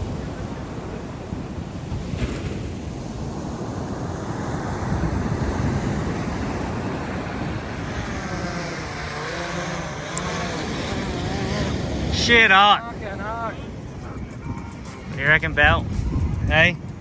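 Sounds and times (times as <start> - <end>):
surf breaking on beach: 0.0 - 15.7
wind buffeting microphone: 0.0 - 17.0
motor hum wavering in pitch: 5.8 - 15.2.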